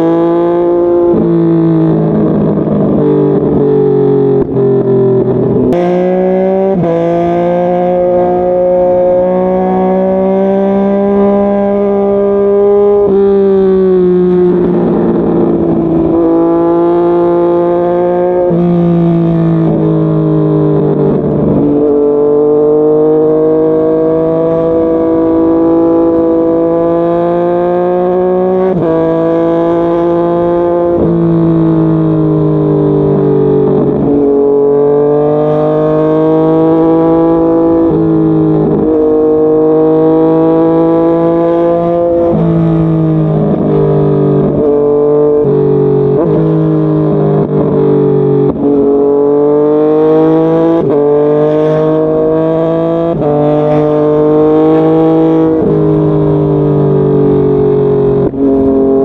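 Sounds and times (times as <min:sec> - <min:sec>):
motorcycle engine running: 0:00.0 - 0:35.2.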